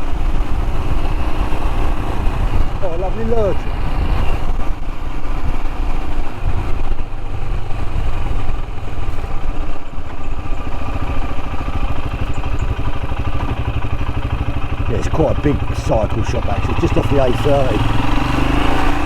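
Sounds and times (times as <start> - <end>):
motorcycle engine thumping: 8.4 - 18.2.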